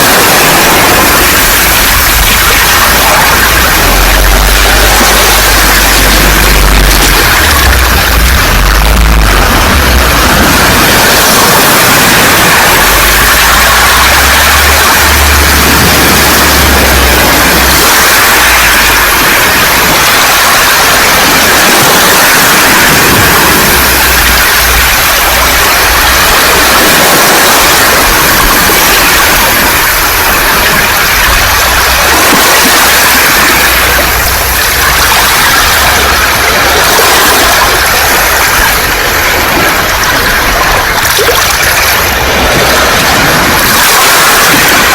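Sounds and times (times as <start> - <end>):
waves rattling pebbles: 0.0 - 44.9
low rumble: 0.1 - 21.5.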